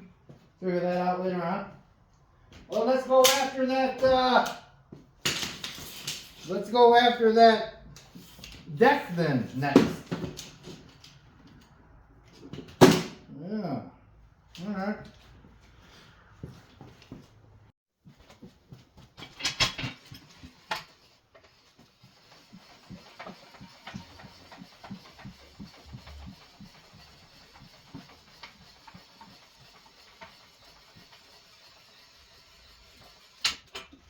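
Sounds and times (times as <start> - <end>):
handling clatters and knocks: 18.1 - 31.1.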